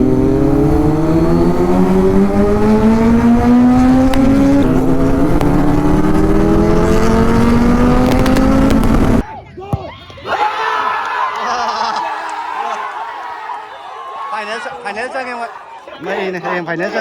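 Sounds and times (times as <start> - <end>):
motorcycle engine pulling: 0.0 - 9.2.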